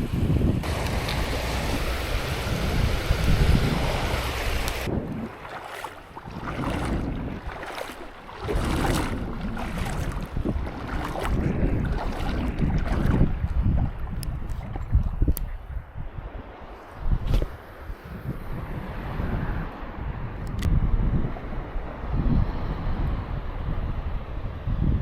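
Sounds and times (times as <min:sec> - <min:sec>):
wind on microphone: 0:00.0 - 0:25.0
waves breaking on a beach: 0:00.6 - 0:15.3.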